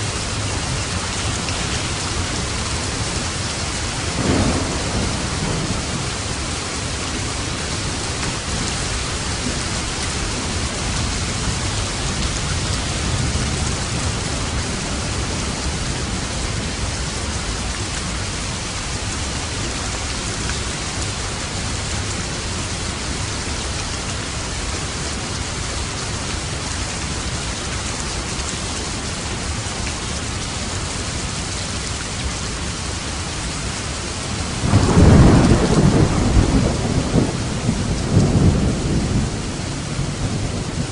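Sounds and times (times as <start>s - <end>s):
steady rain falling: 0.0s - 40.9s
thunder rumbling: 3.4s - 17.2s, 34.5s - 40.9s.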